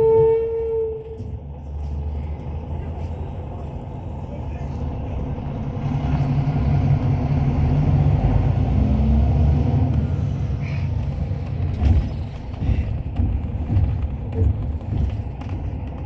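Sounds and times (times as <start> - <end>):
coach engine and road rumble: 0.0 - 16.0.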